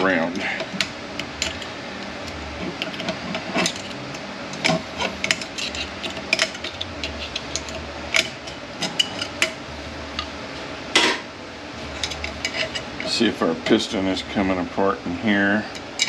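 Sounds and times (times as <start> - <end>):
metallic clicks and scrapes: 2.6 - 9.6, 11.9 - 13.2.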